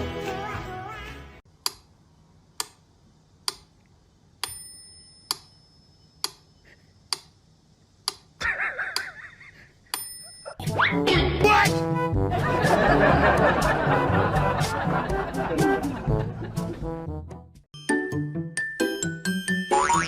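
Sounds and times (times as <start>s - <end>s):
music: 0.0s - 1.4s, 10.6s - 20.0s
clock ticking: 8.0s - 8.3s.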